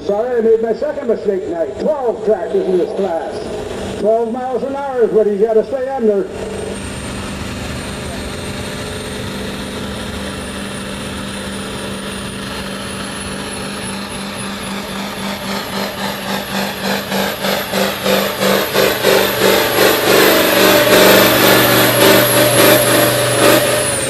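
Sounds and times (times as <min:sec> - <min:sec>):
tractor engine surging: 0:00.0 - 0:24.0
high turbo whistle: 0:09.2 - 0:24.0.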